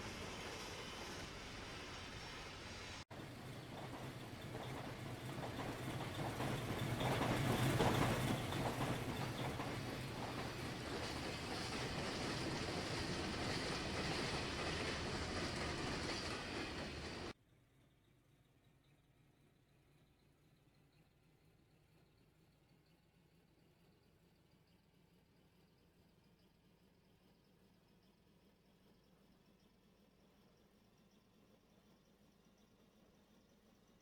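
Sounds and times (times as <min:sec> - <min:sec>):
steam train rolling past: 0:00.0 - 0:17.4
wheels clicking over rail joints: 0:03.2 - 0:17.4.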